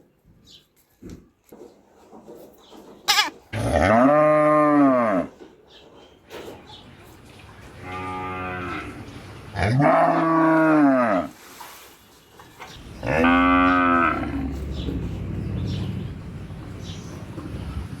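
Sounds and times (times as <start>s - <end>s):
cow mooing: 7.8s - 9.0s, 9.6s - 11.3s, 13.0s - 15.0s
low rumble: 12.8s - 18.0s.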